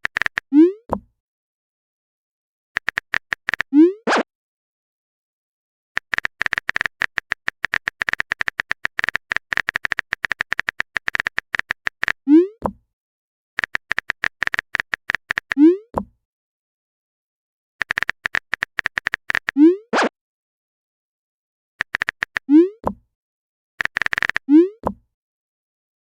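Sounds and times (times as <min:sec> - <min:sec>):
high typing clicks: 0:00.0 - 0:00.5, 0:02.8 - 0:03.7, 0:06.0 - 0:12.2, 0:13.6 - 0:15.6, 0:17.8 - 0:19.6, 0:21.8 - 0:22.5, 0:23.8 - 0:24.5.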